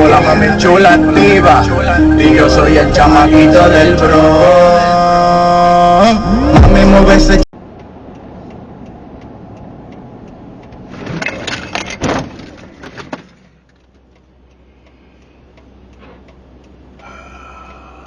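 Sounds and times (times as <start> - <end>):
vehicle road noise: 0.0 - 18.0
faint steady ticking: 7.6 - 10.9, 13.9 - 18.0.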